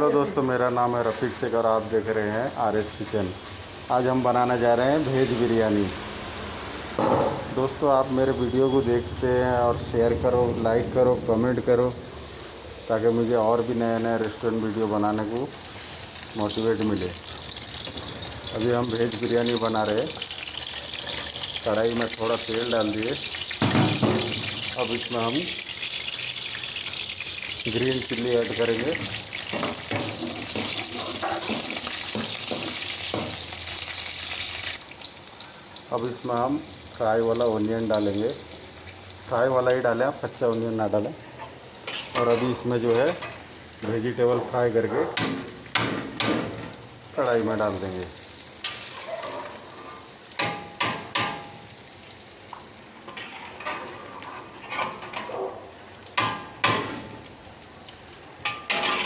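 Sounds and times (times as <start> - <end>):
chillies sizzling in hot oil: 0.0 - 59.0
metal utensil scraping pan: 20.2 - 22.2, 28.7 - 33.4, 41.4 - 43.4, 53.1 - 55.4, 58.4 - 59.0
utensil clanging against pan: 58.4 - 59.0.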